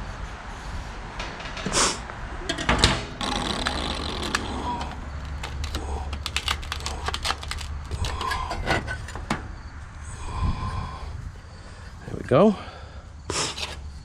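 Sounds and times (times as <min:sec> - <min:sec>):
sheet metal clicks and knocks: 0:02.4 - 0:04.4.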